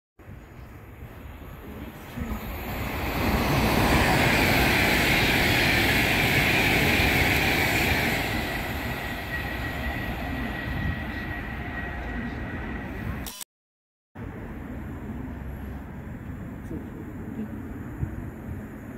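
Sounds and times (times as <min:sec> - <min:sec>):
train rushing past: 0:00.9 - 0:13.2.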